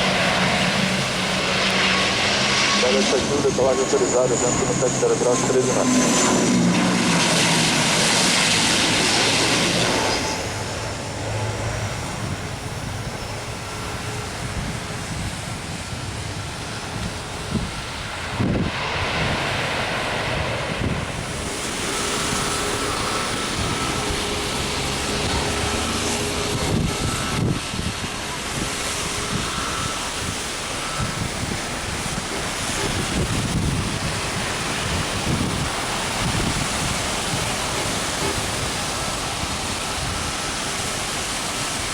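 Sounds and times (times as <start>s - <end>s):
distant jet engine: 0.0s - 41.9s
wind on microphone: 6.3s - 41.9s.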